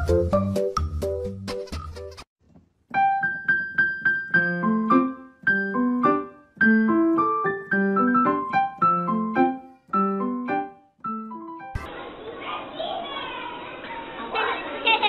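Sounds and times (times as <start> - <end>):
light piano tune: 2.9 - 12.0.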